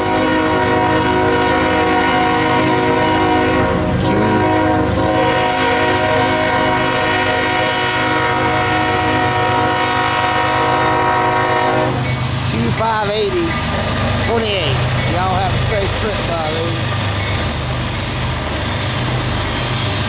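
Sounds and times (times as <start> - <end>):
locomotive horn: 0.0 - 12.1.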